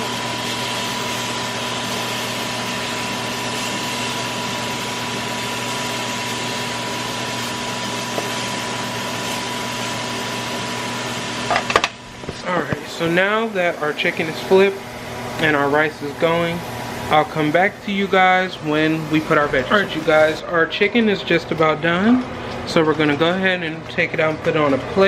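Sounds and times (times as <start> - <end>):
range hood fan running: 0.0 - 25.0.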